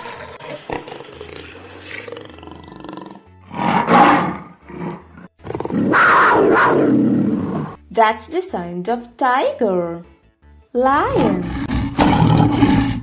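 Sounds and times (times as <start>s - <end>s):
tiger roaring: 0.0s - 7.8s, 11.2s - 13.0s.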